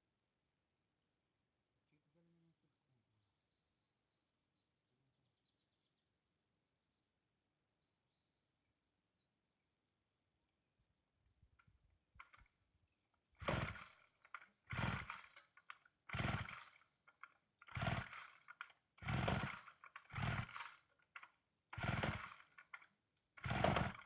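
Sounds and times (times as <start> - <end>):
chainsaw recoil starter pulls: 12.2 - 12.5, 13.4 - 24.0.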